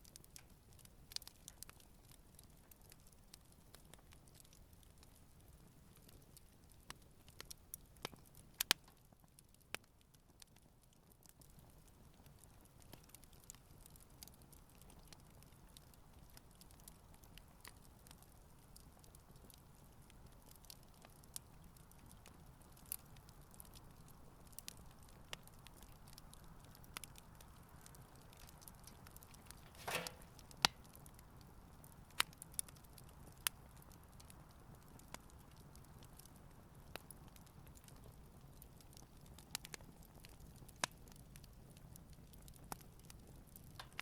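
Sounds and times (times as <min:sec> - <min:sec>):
campfire crackling: 0:00.0 - 0:44.0
faint steady background noise: 0:00.0 - 0:44.0
short hiss: 0:29.6 - 0:30.4.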